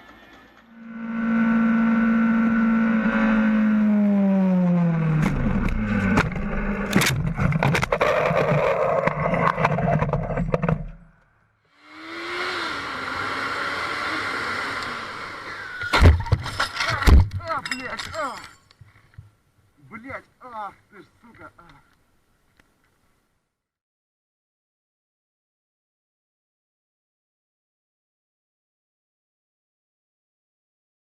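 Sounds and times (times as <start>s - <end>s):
road noise: 0.0s - 17.0s
vehicle engine running: 0.6s - 7.9s
sharp knocks and scraping clatter: 5.2s - 11.2s, 15.8s - 19.3s.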